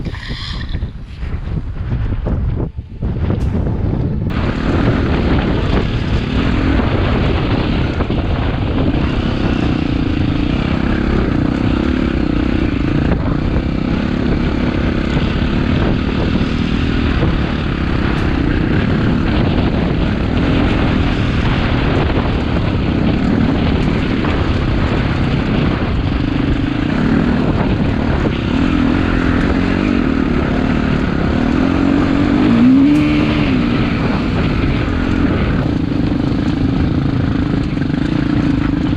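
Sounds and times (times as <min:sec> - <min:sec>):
dirt bike engine revving: 0:31.4 - 0:37.0.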